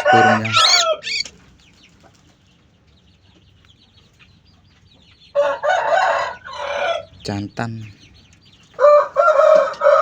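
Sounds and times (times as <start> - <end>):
rooster crowing: 0.0 - 1.2, 5.4 - 7.1, 8.8 - 10.0
small birds chirping: 0.0 - 10.0.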